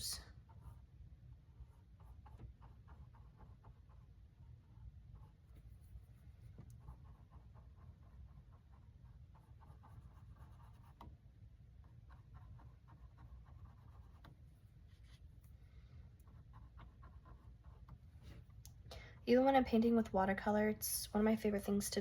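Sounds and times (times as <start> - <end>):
low steady hum: 0.0 - 22.0
paintbrush scratching on canvas: 0.4 - 11.2, 11.8 - 15.3, 16.2 - 18.4.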